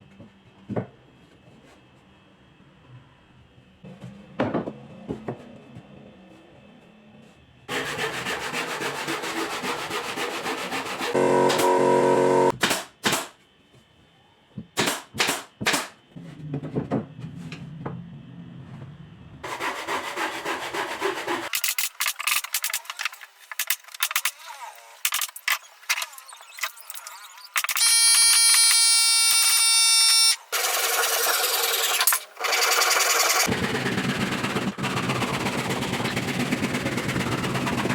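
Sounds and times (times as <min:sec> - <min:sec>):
sanding on wood: 0:07.7 - 0:11.4, 0:19.4 - 0:21.5
power tool motor running: 0:11.1 - 0:12.5.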